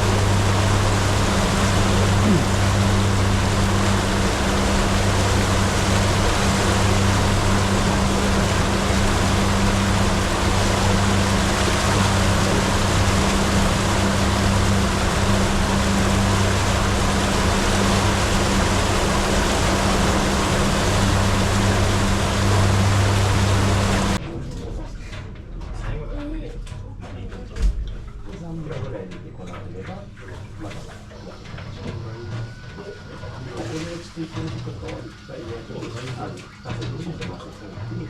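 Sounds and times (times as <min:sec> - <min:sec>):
boat engine humming: 0:00.0 - 0:24.2
water rushing along hull: 0:00.0 - 0:24.2, 0:29.4 - 0:38.0.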